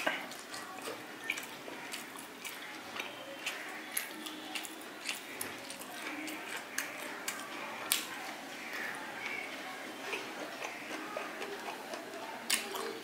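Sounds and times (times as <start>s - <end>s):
mouth chewing clicks and smacks: 0.2s - 8.1s, 10.0s - 13.0s.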